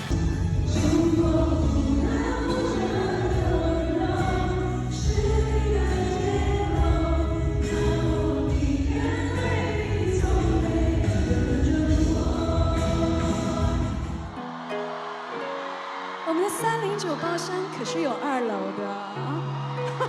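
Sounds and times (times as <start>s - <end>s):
person singing: 0.0s - 15.6s
live pop band playing: 0.0s - 15.9s.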